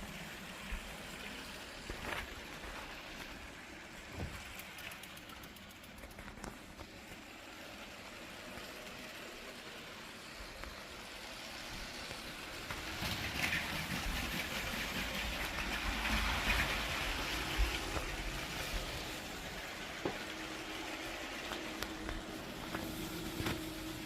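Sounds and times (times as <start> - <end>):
toy train running on track: 0.0 - 24.0
sharp clicks over track: 4.4 - 6.6.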